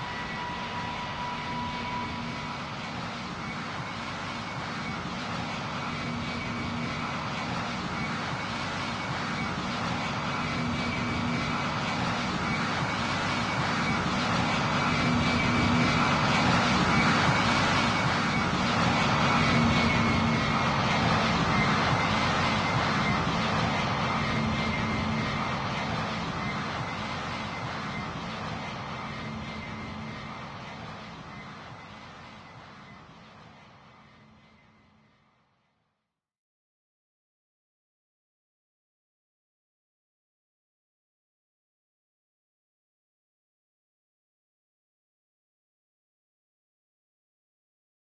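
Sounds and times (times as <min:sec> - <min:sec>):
airplane engines whining: 0:00.0 - 0:35.3.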